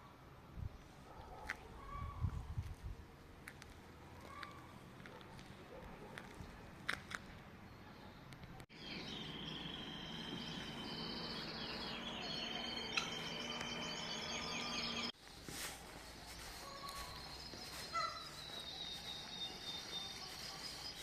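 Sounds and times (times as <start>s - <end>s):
outdoor ambience: 0.0s - 21.0s
small birds singing and trilling: 7.7s - 15.1s, 16.3s - 21.0s.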